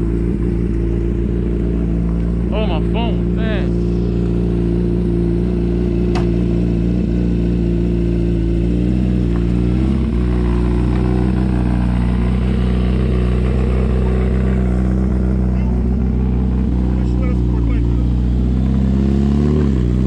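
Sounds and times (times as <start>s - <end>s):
vehicle engine droning: 0.0s - 20.0s
sharp click: 6.1s - 6.4s.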